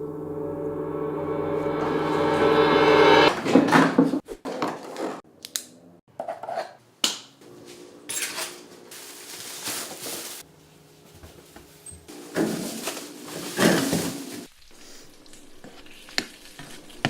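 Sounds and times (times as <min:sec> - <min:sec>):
utensils and dishes clinking: 0:08.1 - 0:10.4, 0:11.9 - 0:14.5.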